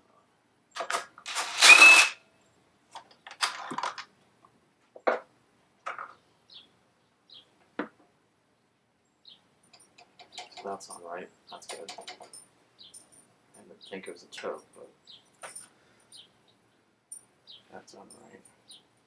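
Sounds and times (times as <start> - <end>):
metal tools clicking: 11.7 - 13.6.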